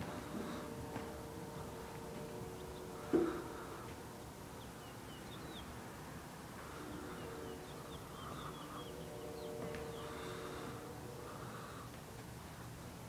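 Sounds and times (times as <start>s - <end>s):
steady low hum: 0.0s - 13.0s
small birds chirping: 2.4s - 11.7s.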